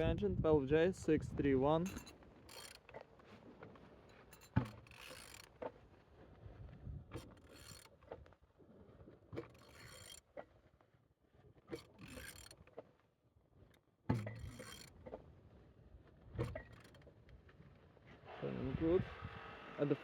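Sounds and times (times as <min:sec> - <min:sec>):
engine internals clicking and scraping: 0:01.7 - 0:03.2, 0:04.0 - 0:05.8, 0:07.1 - 0:08.4, 0:09.4 - 0:10.5, 0:11.7 - 0:12.9, 0:14.1 - 0:15.2, 0:16.3 - 0:17.5
wrench click on engine: 0:04.2 - 0:05.5.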